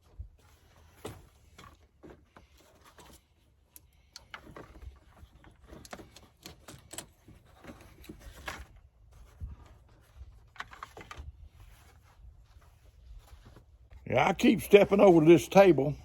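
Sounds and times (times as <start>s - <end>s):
tools clicking and rattling: 5.6s - 7.8s.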